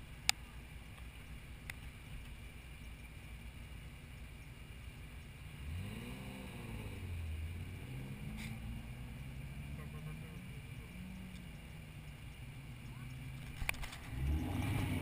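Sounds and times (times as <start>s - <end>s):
car engine running and revving: 0.0s - 15.0s.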